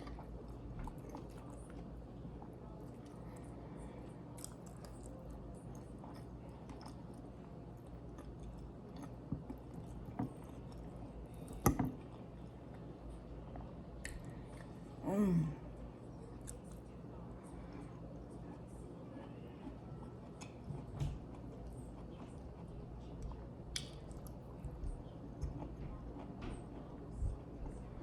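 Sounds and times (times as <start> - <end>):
close-miked chewing: 0.0 - 3.6, 4.3 - 14.9, 16.3 - 17.1, 19.6 - 28.0
person humming: 15.0 - 15.6.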